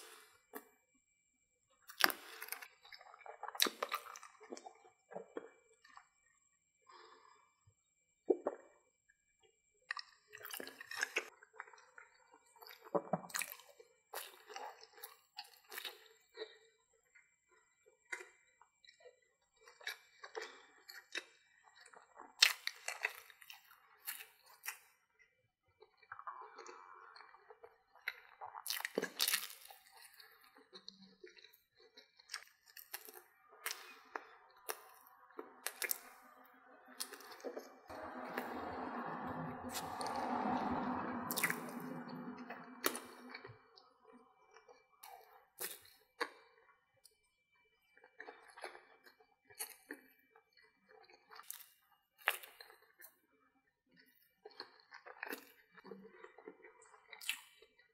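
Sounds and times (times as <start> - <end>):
wet squishy chewing: 1.9 - 5.5, 12.6 - 16.5, 19.7 - 24.9, 26.1 - 43.5, 45.0 - 46.4, 50.9 - 53.1, 54.5 - 57.8.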